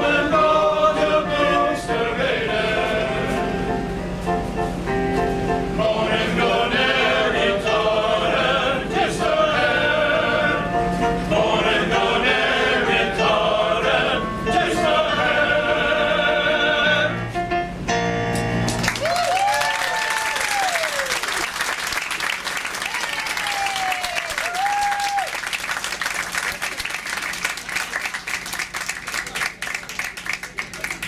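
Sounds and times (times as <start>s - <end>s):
male chorus singing in harmony: 0.0s - 3.6s, 5.8s - 17.2s.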